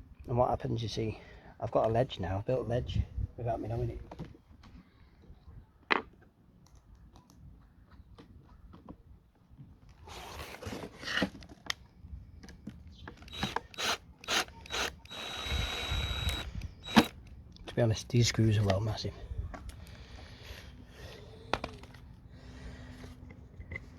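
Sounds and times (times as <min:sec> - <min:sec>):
power drill driving screws: 0:13.3 - 0:17.2.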